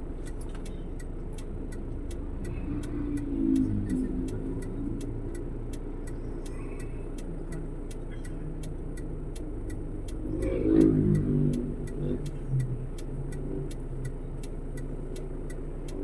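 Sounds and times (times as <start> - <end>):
faint even ticking: 0.0 - 16.0
vehicle rumbling in traffic: 0.0 - 16.0.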